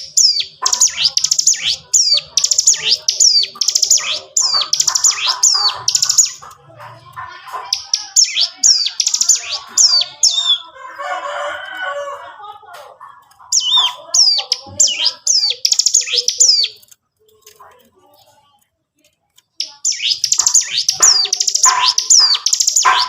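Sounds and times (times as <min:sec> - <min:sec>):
bird chattering: 0:00.0 - 0:10.8, 0:13.0 - 0:16.9, 0:19.5 - 0:23.0
bird singing sharp high notes: 0:13.6 - 0:16.8, 0:19.6 - 0:23.0.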